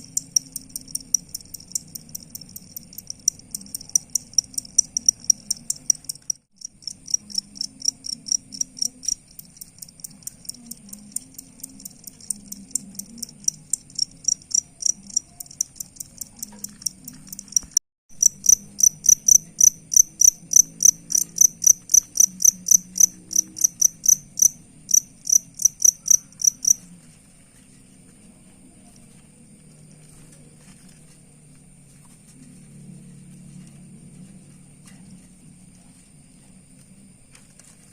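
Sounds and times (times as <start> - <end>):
crickets chirping: 0.0 - 27.1.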